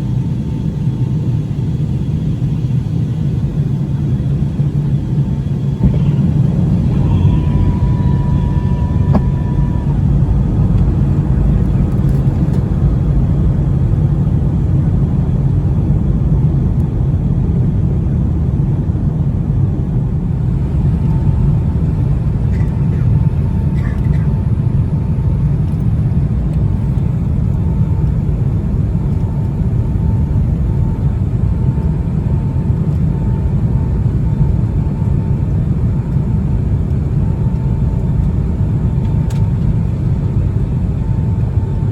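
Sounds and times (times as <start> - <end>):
faint hum: 0.0 - 25.0
aircraft cabin engine rumble: 0.0 - 41.9.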